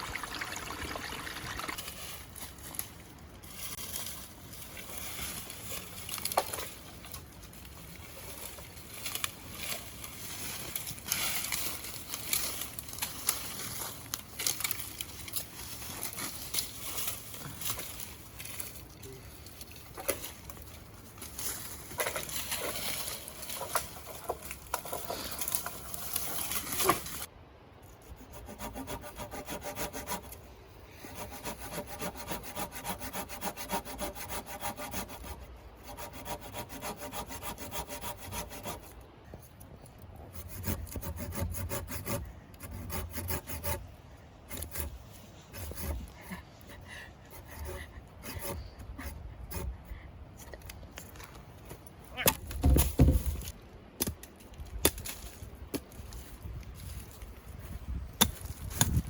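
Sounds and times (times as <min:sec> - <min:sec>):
hand saw cutting wood: 0:28.2 - 0:30.4, 0:31.0 - 0:38.9, 0:40.3 - 0:43.8, 0:44.5 - 0:46.4, 0:47.3 - 0:49.8.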